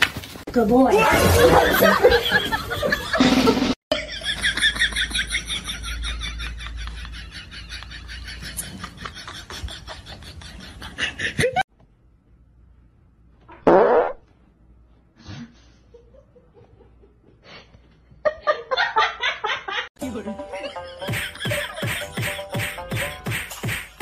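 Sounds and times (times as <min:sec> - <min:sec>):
loud fart: 0:03.2 - 0:03.8, 0:13.5 - 0:14.3.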